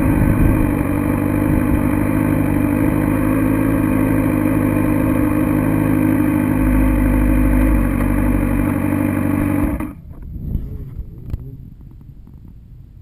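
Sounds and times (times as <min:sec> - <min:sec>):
motorcycle engine idling: 0:00.0 - 0:10.1
faint low rumbles: 0:09.7 - 0:13.0.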